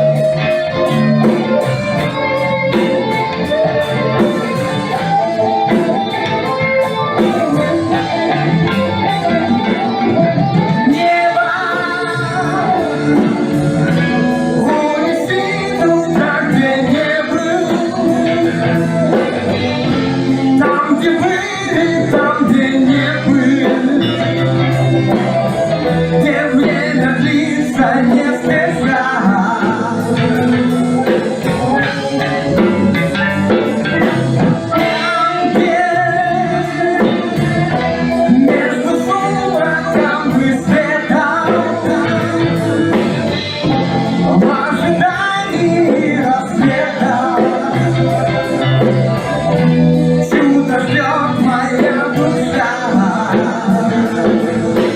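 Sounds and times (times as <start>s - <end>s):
drum kit: 0.0s - 54.9s
guitar: 0.0s - 54.9s
person singing: 0.0s - 54.9s.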